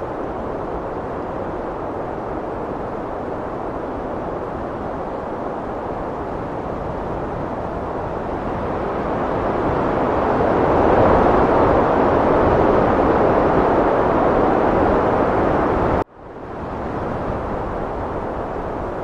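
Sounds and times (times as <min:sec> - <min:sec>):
heavy wind blowing: 0:00.0 - 0:19.0.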